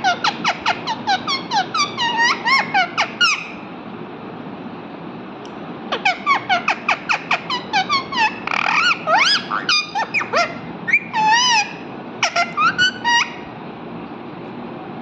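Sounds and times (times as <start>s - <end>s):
parrot chirping: 0.0s - 3.6s, 5.9s - 13.5s
parrot squawk: 0.0s - 3.6s, 5.9s - 13.5s
parrot whistles: 6.0s - 13.4s.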